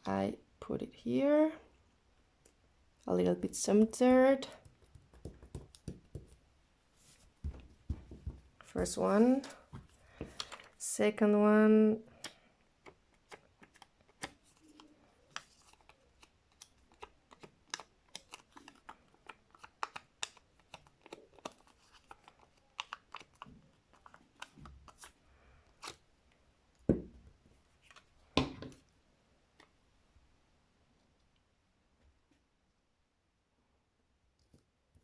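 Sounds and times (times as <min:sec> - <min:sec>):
paper crinkling and clicking: 0:12.8 - 0:25.1.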